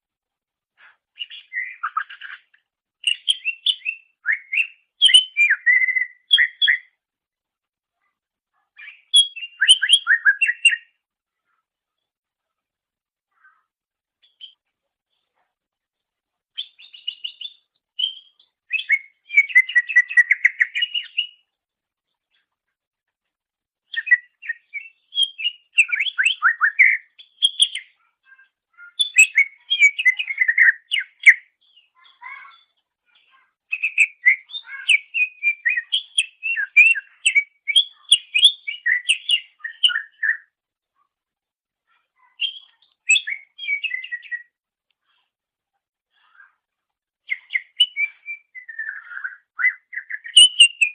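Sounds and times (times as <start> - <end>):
bird chirping and whistling: 1.2 - 2.4, 3.0 - 6.9, 8.8 - 10.9, 16.6 - 21.4, 23.9 - 27.9, 28.9 - 31.4, 33.7 - 40.4, 42.4 - 44.5, 47.3 - 50.9.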